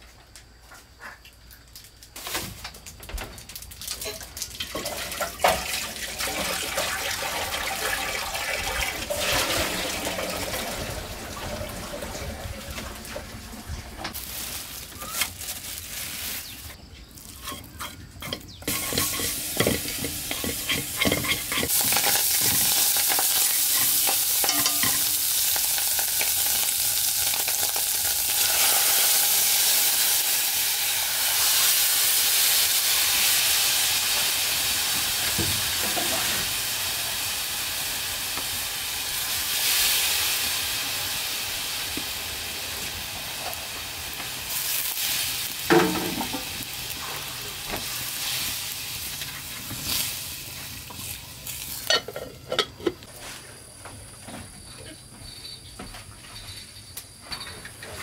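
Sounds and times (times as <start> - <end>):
pork sizzling in a metal pot: 3.4 - 53.1
utensils knocking and clattering: 17.4 - 25.1, 45.7 - 46.6.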